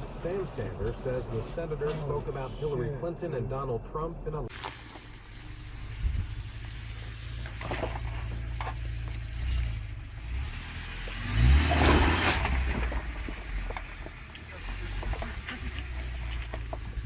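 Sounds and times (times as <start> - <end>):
noisy scraping: 0.0 - 17.0
vehicle engine and road rumble: 0.0 - 17.0.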